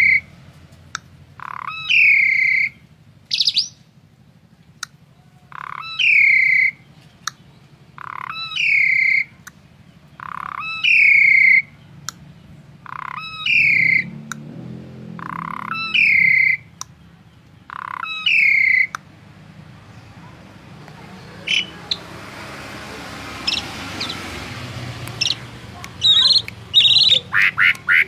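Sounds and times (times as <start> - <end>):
songbird whistled call: 1.7 - 3.8, 13.2 - 14.1, 26.0 - 28.0
sharp clicks: 12.0 - 12.3, 14.2 - 14.5, 24.9 - 28.0.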